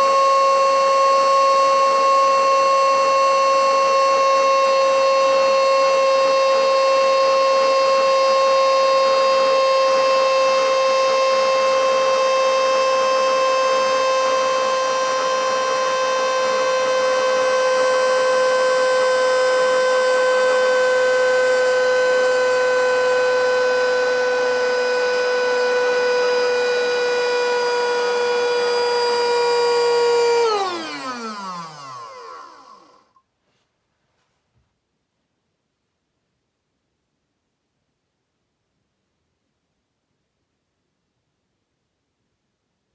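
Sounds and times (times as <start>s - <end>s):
handheld vacuum cleaner whine: 0.0s - 33.2s.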